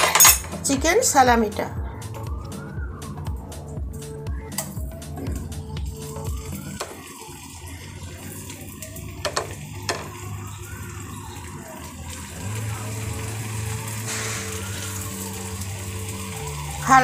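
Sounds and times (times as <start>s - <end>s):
meat sizzling in a frying pan: 6.0s - 17.0s.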